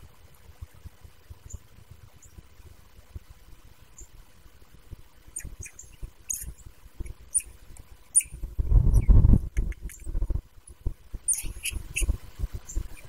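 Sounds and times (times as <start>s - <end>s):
high bird chirps: 5.4s - 10.1s, 11.3s - 13.0s.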